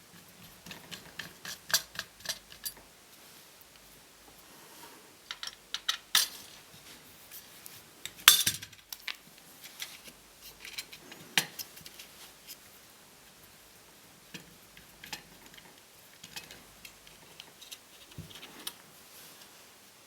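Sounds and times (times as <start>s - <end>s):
small metal parts clicking and clinking: 0.6s - 2.8s, 5.3s - 6.4s.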